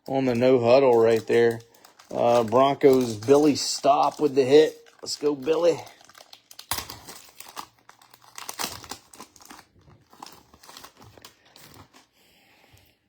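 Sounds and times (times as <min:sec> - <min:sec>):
foil wrapper crinkling and tearing: 0:00.0 - 0:12.2.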